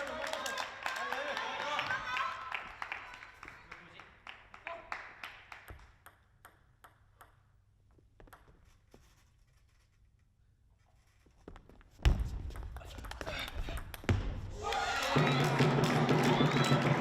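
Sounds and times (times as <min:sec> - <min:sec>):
crowd applause: 0:00.0 - 0:05.1, 0:14.5 - 0:17.0
ping-pong ball clicking: 0:05.7 - 0:07.6, 0:08.2 - 0:08.6.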